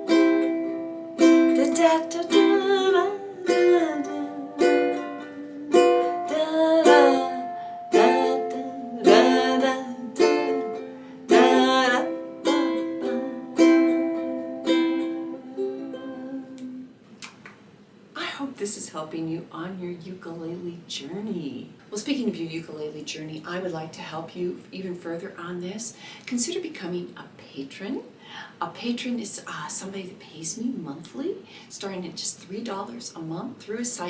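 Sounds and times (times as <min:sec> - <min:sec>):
ukulele strumming chords: 0:00.0 - 0:16.9.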